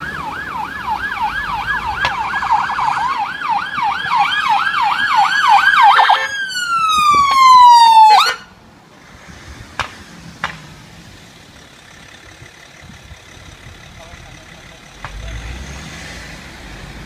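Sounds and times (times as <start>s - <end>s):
police siren: 0.0s - 8.6s.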